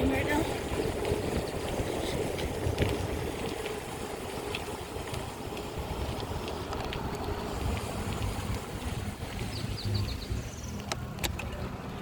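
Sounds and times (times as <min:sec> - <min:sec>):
bike clicks and rattles: 0:00.0 - 0:12.0
wind buffeting microphone: 0:00.0 - 0:12.0.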